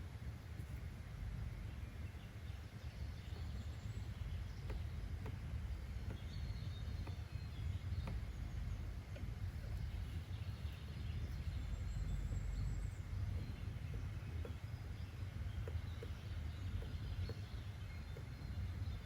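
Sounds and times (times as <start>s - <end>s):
low background rumble: 0.0s - 19.0s
faint bird chirps: 1.5s - 19.0s
soft clicks: 4.2s - 10.3s.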